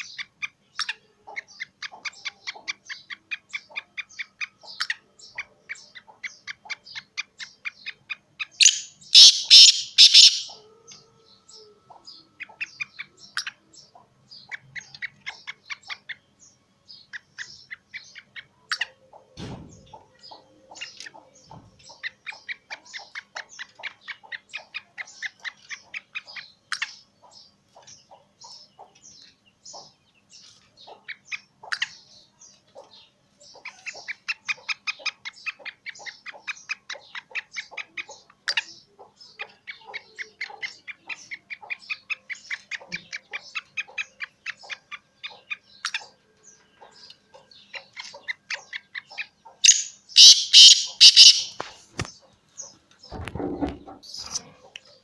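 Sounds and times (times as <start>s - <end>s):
bird chirping rapidly: 0.0s - 10.6s, 47.6s - 55.0s.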